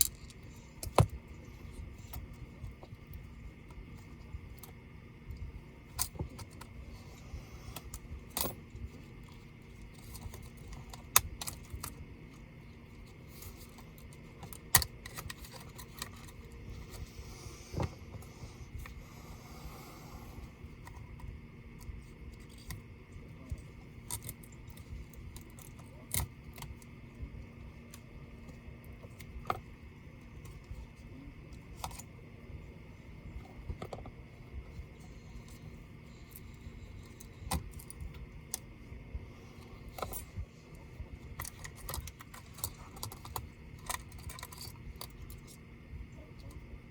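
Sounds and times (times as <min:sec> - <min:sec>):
faint steady hum: 0:00.0 - 0:46.9
small metal and plastic clicks: 0:07.7 - 0:16.4, 0:41.3 - 0:45.6.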